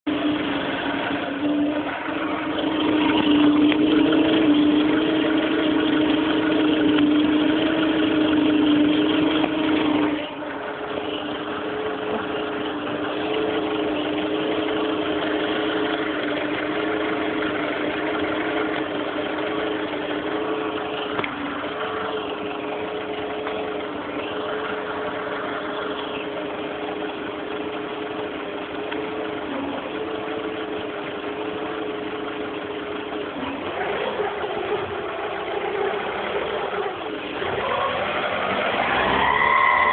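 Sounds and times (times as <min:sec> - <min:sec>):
car engine humming: 0:00.0 - 0:39.9.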